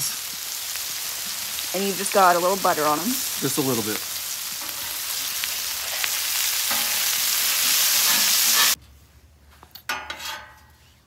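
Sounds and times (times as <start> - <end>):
food sizzling on a griddle: 0.0 - 8.8.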